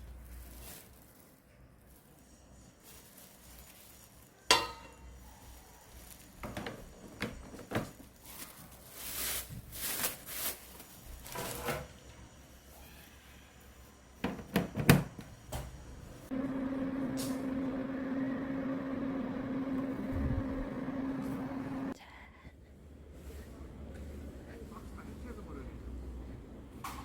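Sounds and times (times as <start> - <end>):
rustling: 0.0 - 4.4, 8.1 - 11.4.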